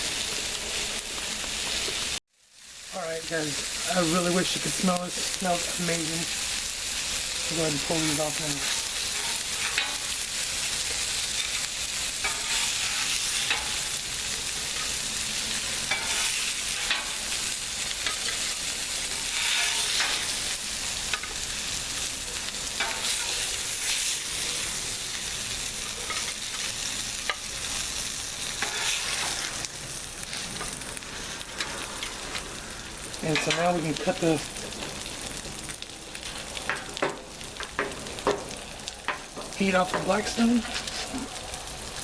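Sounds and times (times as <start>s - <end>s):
food sizzling on a griddle: 0.0s - 42.0s
metal spatula scraping griddle: 7.5s - 22.1s, 22.7s - 32.6s, 39.8s - 41.3s.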